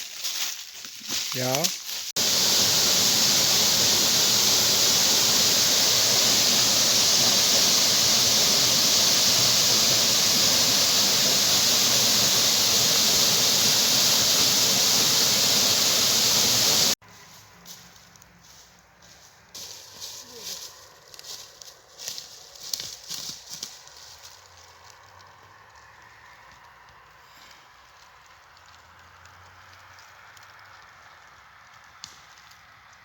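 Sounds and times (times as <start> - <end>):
waterfall rushing: 2.2 - 17.0.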